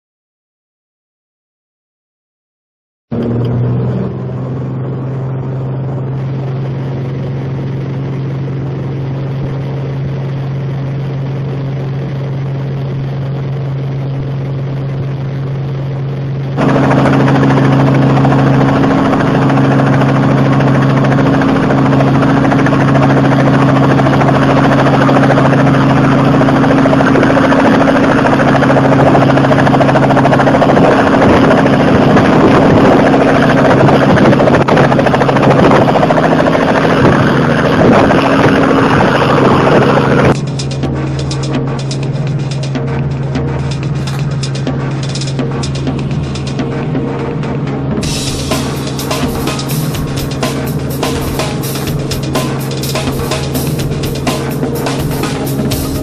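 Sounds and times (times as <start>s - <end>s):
helicopter engine and rotors: 3.1s - 56.0s.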